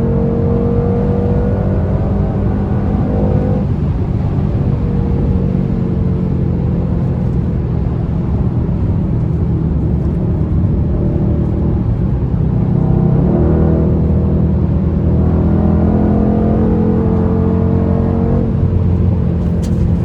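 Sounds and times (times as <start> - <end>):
car engine droning at speed: 0.0 - 20.0.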